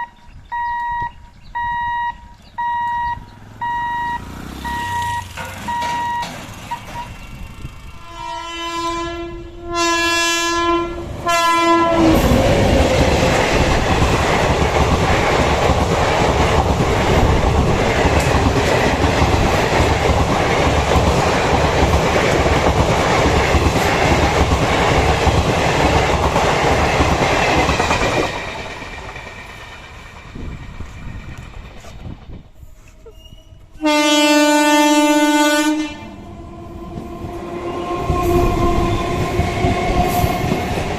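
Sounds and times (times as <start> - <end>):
train wheels clattering on rails: 4.5 - 8.0, 12.0 - 33.0, 36.8 - 40.9
train horn blasts: 7.9 - 12.4, 33.4 - 40.5.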